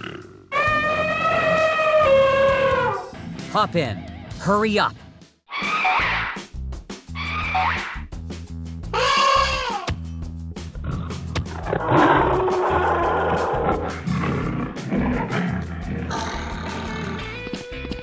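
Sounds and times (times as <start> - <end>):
background music: 3.5 - 5.0
animal-like roar: 11.7 - 17.3.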